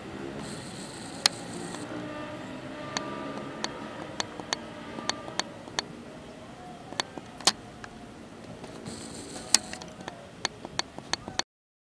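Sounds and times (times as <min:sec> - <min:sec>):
distant electric train running: 0:00.0 - 0:11.3
sharp irregular clicks: 0:00.4 - 0:01.9, 0:02.9 - 0:05.9, 0:06.9 - 0:11.4.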